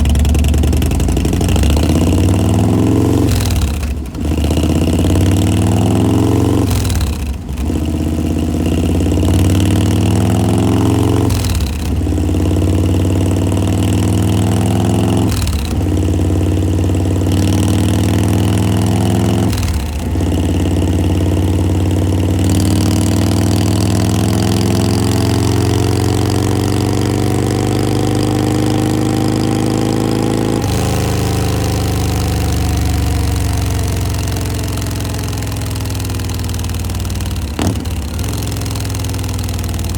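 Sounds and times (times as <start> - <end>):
motorcycle v-twin engine running: 0.0 - 39.9.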